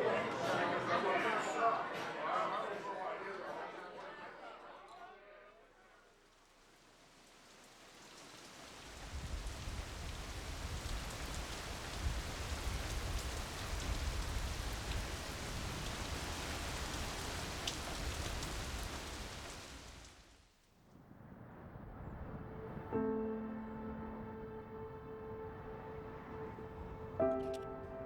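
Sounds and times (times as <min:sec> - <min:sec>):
rain rushing: 0:06.1 - 0:28.0.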